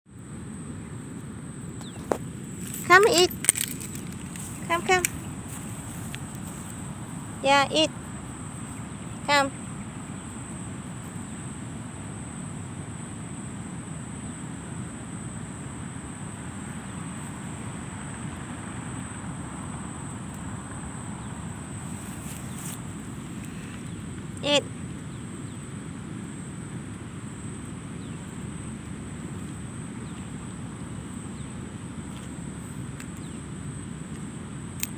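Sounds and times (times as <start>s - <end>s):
low outdoor rumble: 0.1s - 34.9s
faint chirps: 1.6s - 14.8s.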